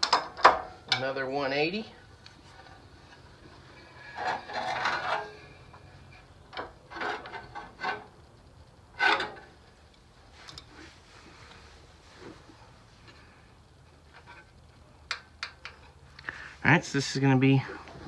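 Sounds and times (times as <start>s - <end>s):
engine rasping rub: 2.4s - 8.2s
metal knocks and clank: 3.8s - 5.8s.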